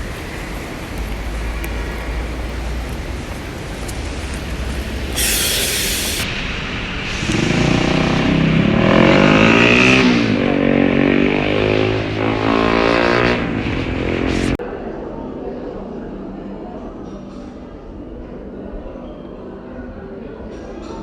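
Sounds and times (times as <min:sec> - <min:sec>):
vehicle engine accelerating: 0:00.0 - 0:14.6
short hiss: 0:04.8 - 0:06.3.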